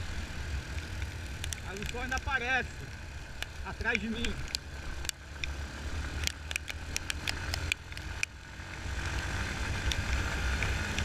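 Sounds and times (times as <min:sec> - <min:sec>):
sharp ticks: 0:03.3 - 0:08.4.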